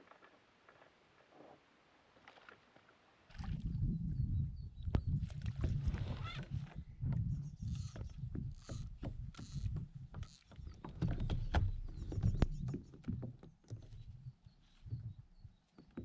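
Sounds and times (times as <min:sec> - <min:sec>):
knocks and clicks on kayak hull: 0:07.9 - 0:14.2.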